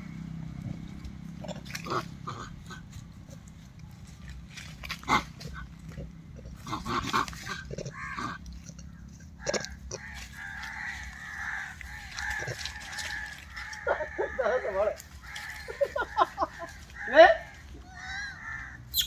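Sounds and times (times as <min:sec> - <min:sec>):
animal grunts and squeaks: 0:00.6 - 0:03.7, 0:04.3 - 0:15.9.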